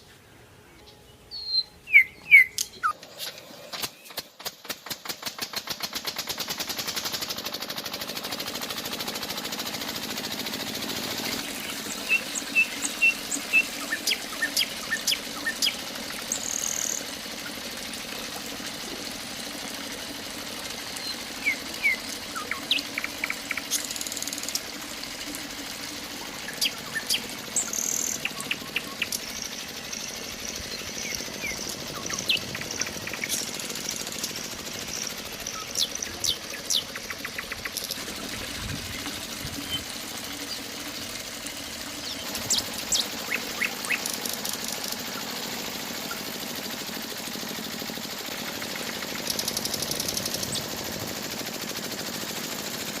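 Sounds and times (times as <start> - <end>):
birds chirping: 0.0 - 4.2, 11.0 - 46.4
small motor rattling: 1.9 - 53.0.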